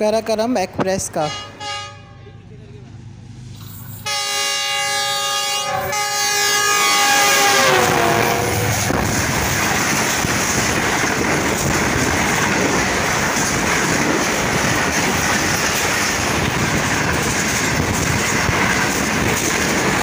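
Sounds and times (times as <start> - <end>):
train passing at high speed: 0.0 - 20.0.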